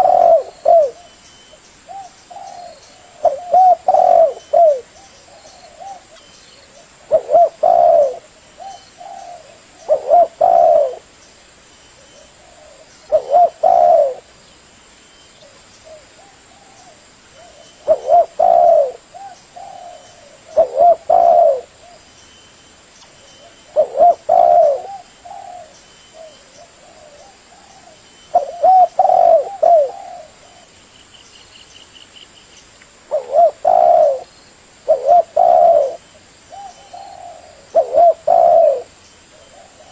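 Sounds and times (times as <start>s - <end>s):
dove cooing: 0.0s - 11.1s, 12.0s - 14.4s, 15.4s - 22.1s, 23.2s - 30.8s, 33.1s - 39.9s.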